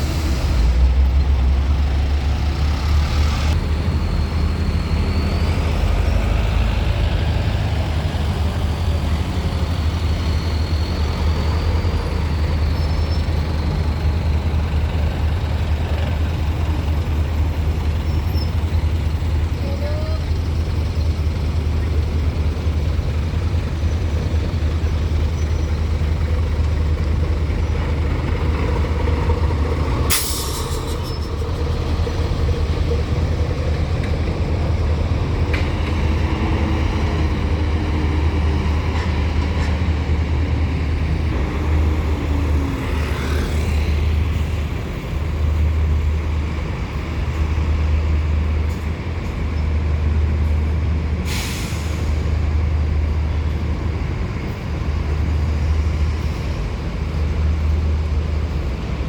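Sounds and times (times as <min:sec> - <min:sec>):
truck engines rumbling: 0:00.0 - 0:59.0
air brake hiss: 0:30.1 - 0:31.3, 0:51.2 - 0:52.3.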